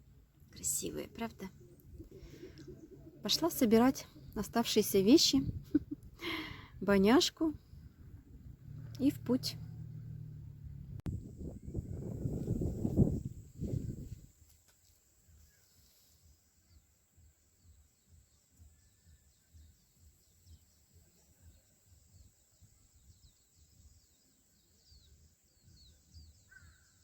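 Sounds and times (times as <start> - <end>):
low rumble: 1.5 - 14.2
faint high bird chirps: 17.6 - 27.0.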